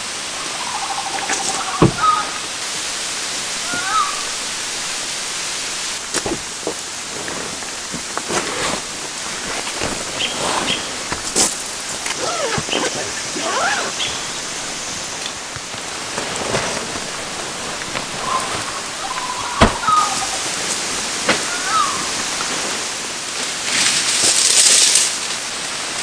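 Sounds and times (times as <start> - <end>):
steady rain: 0.0 - 26.0
fabric bag rustling and knocking: 6.0 - 14.6, 15.6 - 20.3.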